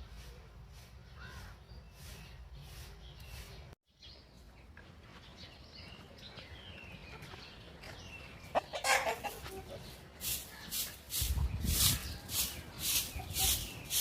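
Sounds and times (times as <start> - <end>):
chickens clucking: 6.8 - 14.0.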